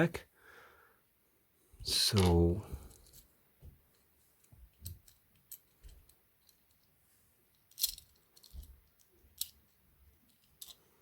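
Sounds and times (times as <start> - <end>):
small model car parts clicking: 7.6 - 10.8.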